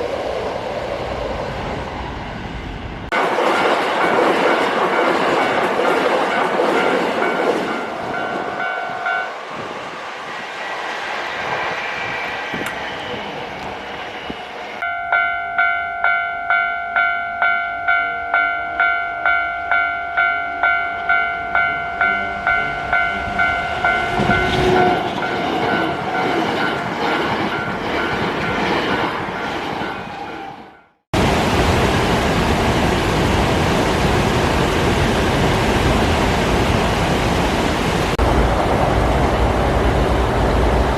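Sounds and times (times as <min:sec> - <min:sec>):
steady rushing noise: 0:00.0 - 0:14.8, 0:31.2 - 0:40.9
train rumble passing: 0:00.0 - 0:14.9, 0:21.0 - 0:30.6, 0:31.2 - 0:40.9.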